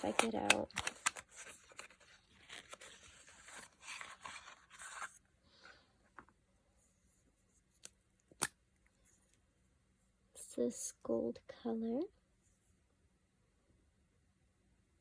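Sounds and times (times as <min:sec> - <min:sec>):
packaging rustling and scraping: 0:00.0 - 0:05.9.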